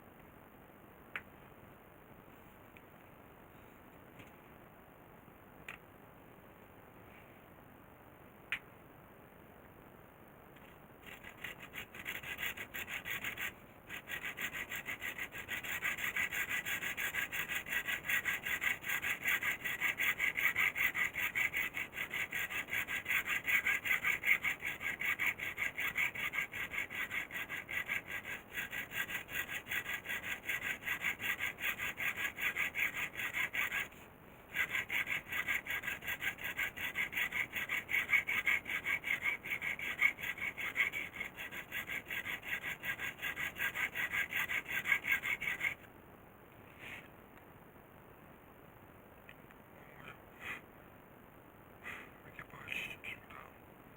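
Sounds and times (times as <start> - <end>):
hand saw strokes: 11.0 - 45.9.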